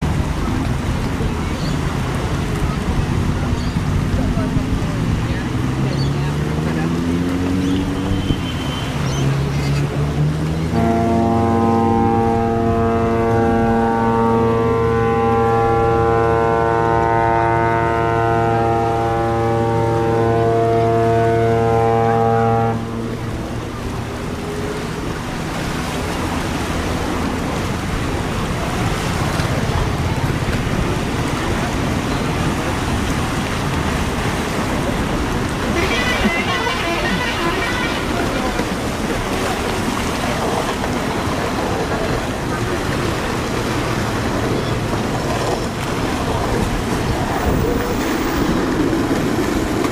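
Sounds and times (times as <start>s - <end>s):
ship's horn blast: 6.6s - 9.5s, 10.6s - 30.5s, 34.6s - 41.8s
steady rushing noise: 22.8s - 49.9s.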